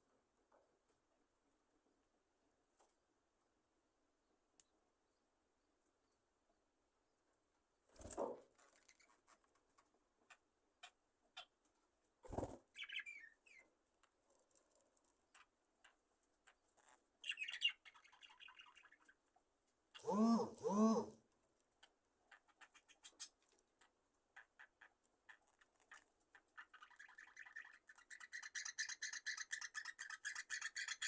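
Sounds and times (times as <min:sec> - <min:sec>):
tiny clicks and scratches: 0:08.0 - 0:11.8, 0:13.5 - 0:19.5, 0:21.5 - 0:31.0
budgerigar chirps and warbles: 0:12.7 - 0:13.6, 0:17.2 - 0:19.2, 0:22.3 - 0:31.0.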